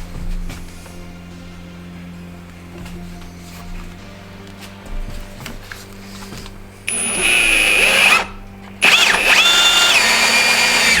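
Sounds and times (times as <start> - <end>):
cordless drill whining: 6.9 - 11.0.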